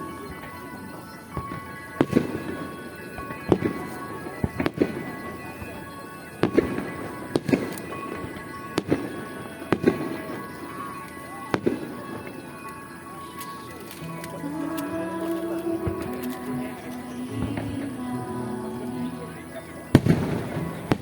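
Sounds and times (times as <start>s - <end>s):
firework bangs: 0.0s - 21.0s
music: 0.0s - 21.0s.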